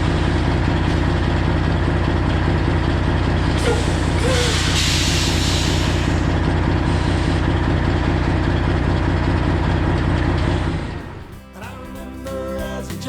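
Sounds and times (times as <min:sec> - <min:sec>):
diesel truck idling: 0:00.0 - 0:11.6
country music: 0:11.0 - 0:13.0.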